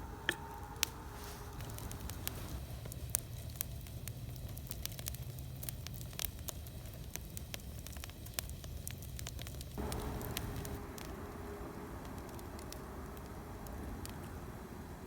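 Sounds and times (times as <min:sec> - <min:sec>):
low steady rumble: 0:00.0 - 0:05.9, 0:09.2 - 0:15.0
campfire crackling: 0:00.0 - 0:15.0
fire popping: 0:00.0 - 0:15.0.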